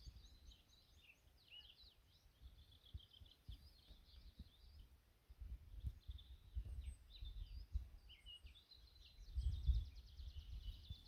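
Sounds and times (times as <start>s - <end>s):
small birds chirping: 0.0s - 11.0s
wind rumbling on microphone: 2.5s - 11.0s.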